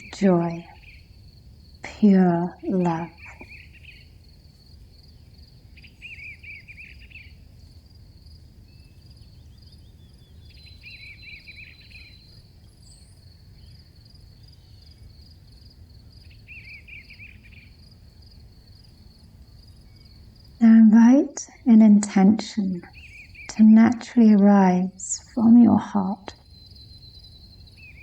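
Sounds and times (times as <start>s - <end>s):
lower chirping call: 0.0s - 1.3s, 2.0s - 4.2s, 5.1s - 7.4s, 8.7s - 15.0s, 16.2s - 17.8s, 19.8s - 28.0s
crickets trilling: 0.0s - 28.0s
faint low hum: 0.0s - 28.0s.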